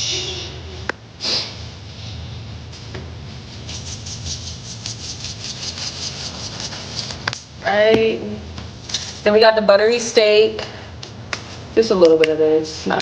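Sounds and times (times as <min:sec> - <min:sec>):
woman shushing: 0:00.0 - 0:01.4
low steady hum: 0:00.0 - 0:13.0.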